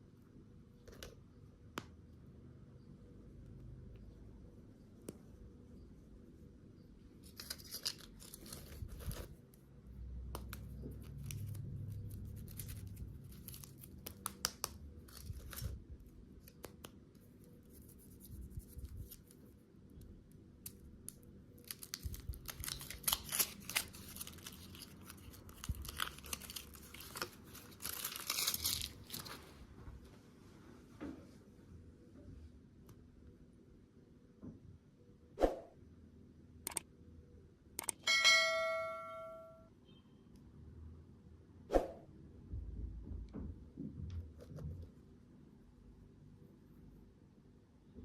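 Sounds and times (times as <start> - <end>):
candy wrapper crinkling: 7.2 - 9.4, 10.6 - 15.8, 20.6 - 29.4.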